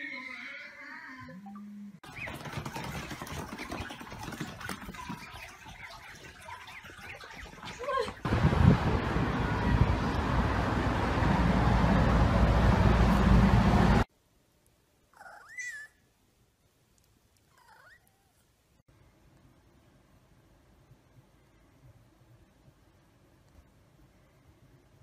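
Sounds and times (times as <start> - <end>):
loud low steady noise: 8.3 - 14.1.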